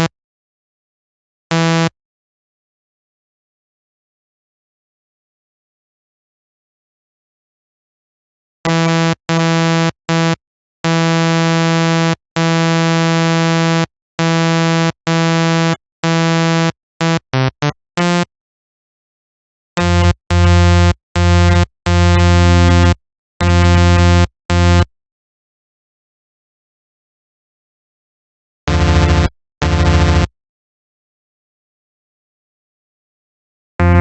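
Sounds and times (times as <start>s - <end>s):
synthesizer held notes: 33.8s - 34.0s.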